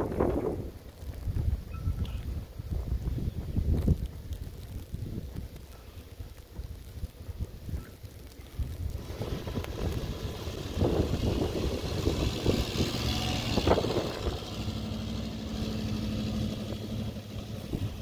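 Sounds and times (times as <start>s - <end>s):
wind buffeting microphone: 0.0s - 18.0s
low engine hum: 8.2s - 18.0s
vehicle passing: 9.0s - 18.0s.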